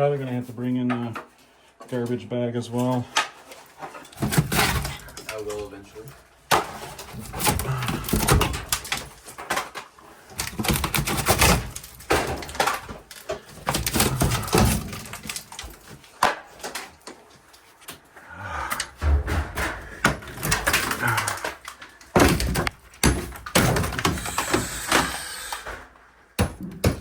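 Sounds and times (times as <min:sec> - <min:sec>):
sheet metal knocking and clattering: 0:18.8 - 0:21.4.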